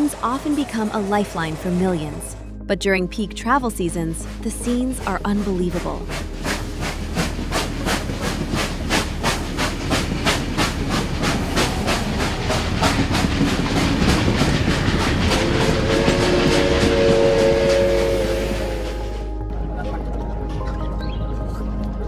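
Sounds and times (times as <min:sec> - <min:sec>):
train wheel clatter: 0:04.1 - 0:18.8
train horn chord: 0:15.2 - 0:19.4.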